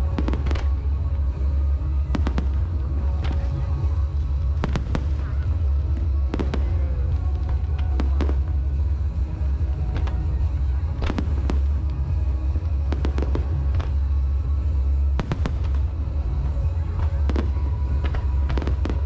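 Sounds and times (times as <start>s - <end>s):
steady low rumble: 0.0s - 19.0s
fireworks bangs: 2.1s - 3.7s, 4.4s - 8.6s, 15.2s - 19.0s.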